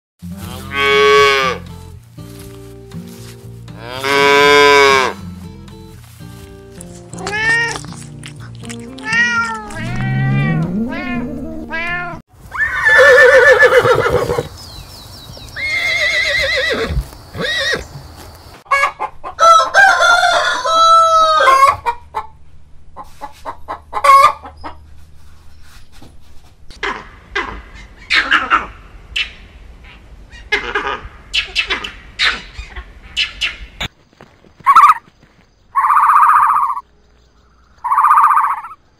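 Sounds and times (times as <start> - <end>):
calf bawling: 6.9 - 14.5
horse whinnying: 9.0 - 14.5, 15.6 - 17.9
rooster and hen clucking: 18.7 - 24.9, 34.7 - 35.0, 35.8 - 36.9, 37.8 - 38.8.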